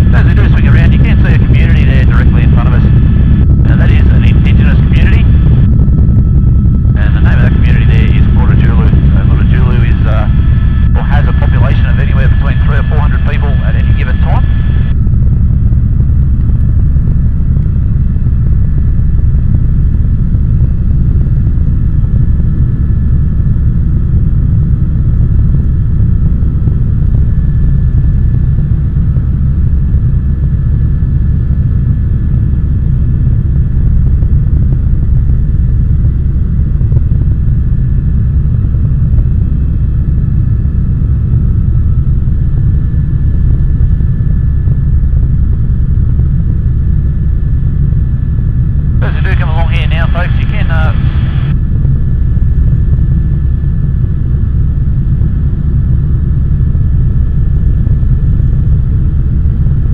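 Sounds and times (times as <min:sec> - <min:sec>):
faint high whine: 0:00.0 - 0:15.0, 0:48.8 - 0:51.7
helicopter rotor and engine rumble: 0:00.0 - 0:59.9.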